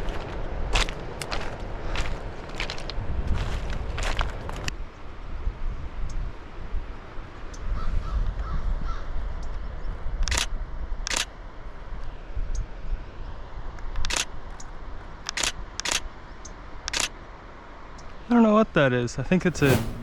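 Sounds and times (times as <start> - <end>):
low wind rumble: 0.0 - 4.8, 19.3 - 20.0
camera shutter clicks: 10.2 - 10.5, 11.1 - 11.3, 14.0 - 14.3, 15.3 - 16.0, 16.9 - 17.1.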